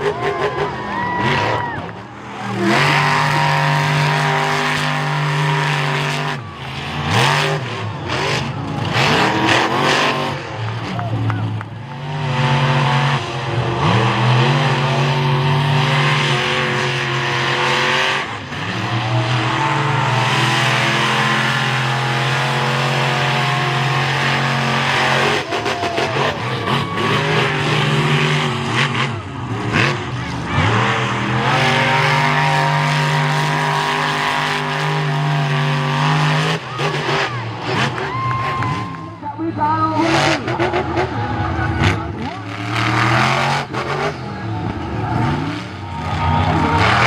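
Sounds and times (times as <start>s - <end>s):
monster truck engine revving: 0.0s - 47.0s.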